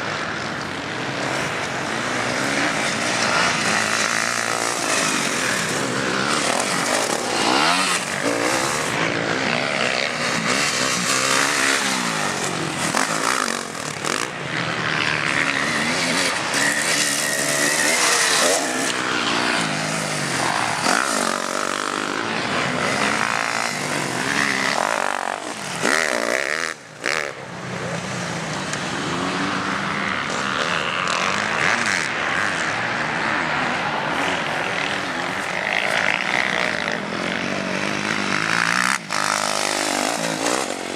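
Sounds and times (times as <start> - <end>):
motocross bikes revving: 0.0 - 40.9.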